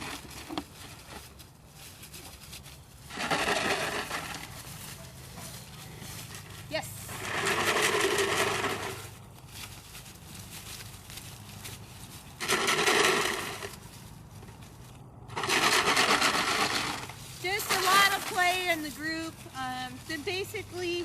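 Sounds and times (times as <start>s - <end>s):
rattling crunching bursts: 2.4s - 5.0s, 5.6s - 21.0s.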